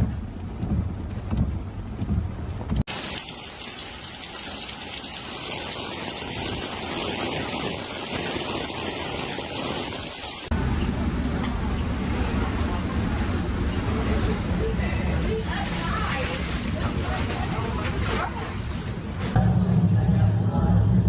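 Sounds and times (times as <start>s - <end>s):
heavy rain hissing: 2.9s - 10.5s
low vehicle engine rumble: 10.5s - 21.0s.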